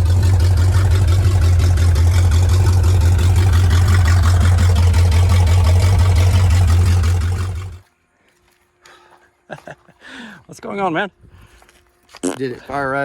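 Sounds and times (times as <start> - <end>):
pickup engine idling: 0.0 - 7.8.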